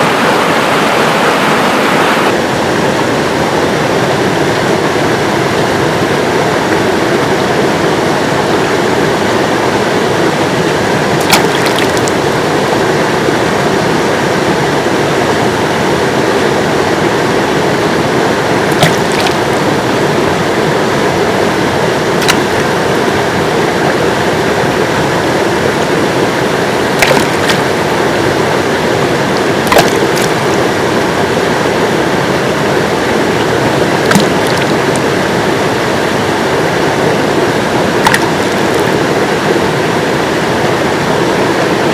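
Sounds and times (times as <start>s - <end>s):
river water rushing: 0.0s - 41.9s
sharp clicks or splashes: 11.2s - 12.2s, 18.7s - 19.4s, 22.2s - 22.6s, 27.0s - 27.7s, 29.4s - 30.4s, 34.0s - 35.1s, 38.0s - 38.9s.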